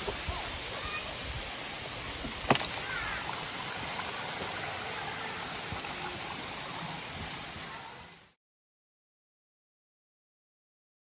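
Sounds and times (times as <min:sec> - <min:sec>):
waterfall rushing: 0:00.0 - 0:08.3.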